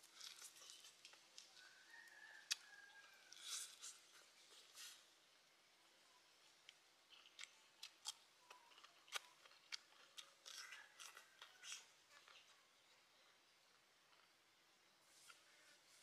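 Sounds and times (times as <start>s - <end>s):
person chewing cucumber: 0.0s - 5.1s, 6.6s - 14.4s.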